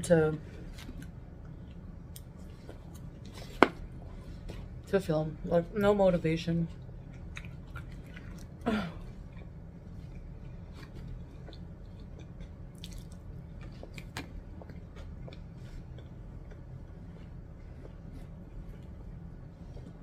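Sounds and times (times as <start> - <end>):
person chewing food: 6.7 - 20.0.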